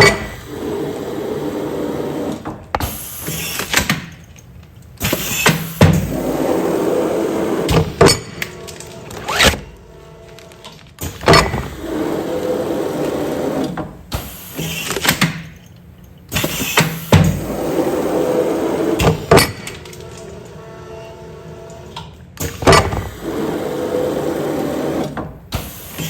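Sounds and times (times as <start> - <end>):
sealing machine motor running: 5.0 - 15.2, 22.5 - 26.0
machine clunks and clicks: 7.6 - 11.8, 19.0 - 20.6, 21.7 - 23.6.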